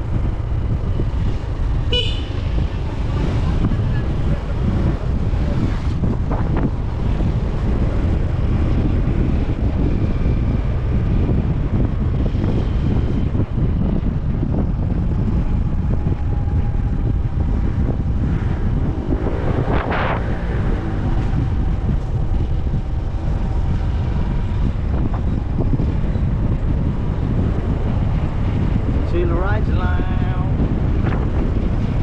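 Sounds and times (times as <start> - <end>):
motorcycle engine running: 0.0 - 29.1
wind rumble on microphone: 0.0 - 32.0.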